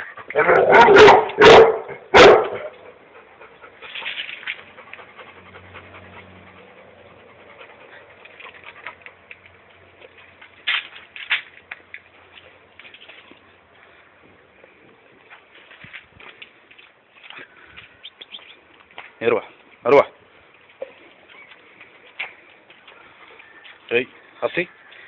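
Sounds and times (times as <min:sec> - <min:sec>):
dog barking: 0:00.4 - 0:02.8.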